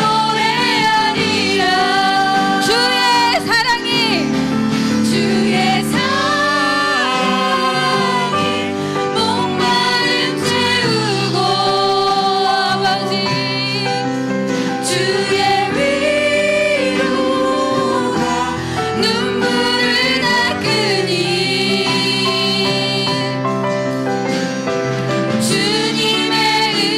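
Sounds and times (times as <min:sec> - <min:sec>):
band playing gospel song: 0:00.0 - 0:26.9
person singing: 0:05.1 - 0:23.4.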